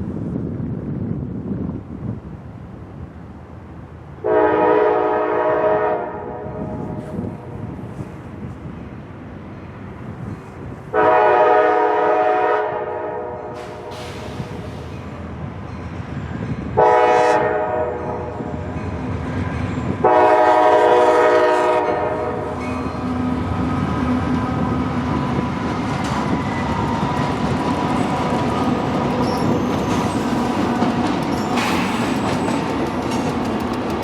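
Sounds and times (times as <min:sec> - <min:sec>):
train rumbling and clacking past: 0:00.0 - 0:34.0
locomotive horn blasts: 0:04.2 - 0:07.0, 0:10.9 - 0:14.1, 0:16.8 - 0:18.5, 0:20.0 - 0:22.6.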